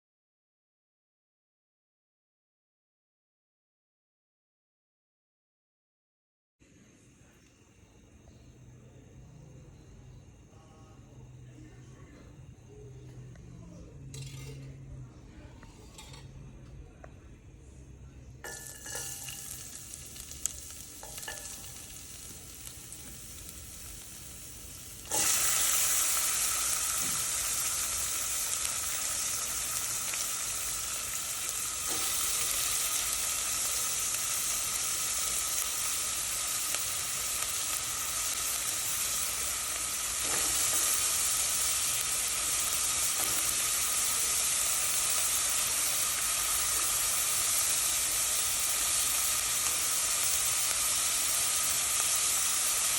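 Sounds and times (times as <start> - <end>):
food dropped into hot oil: 14.1 - 14.7, 18.4 - 23.2
oil sizzling in a pan: 14.1 - 14.7, 15.5 - 16.4, 18.4 - 52.9.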